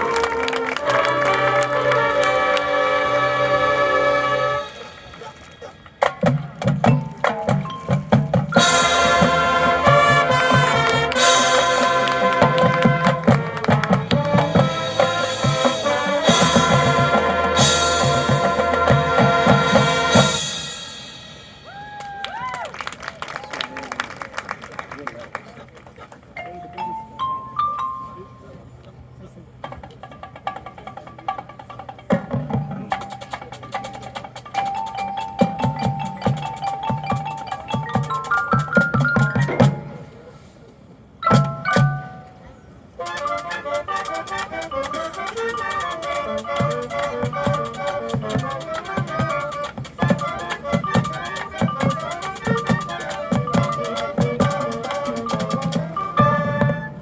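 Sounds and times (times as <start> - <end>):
brass and wind chords: 0.0 - 6.6, 7.7 - 21.6, 39.2 - 57.0
drumline hits: 0.0 - 22.7, 29.6 - 40.3, 41.2 - 42.4, 43.0 - 57.0
mallet percussion rising notes: 6.0 - 21.9, 26.4 - 28.5, 31.2 - 40.3, 41.2 - 42.5, 44.0 - 57.0.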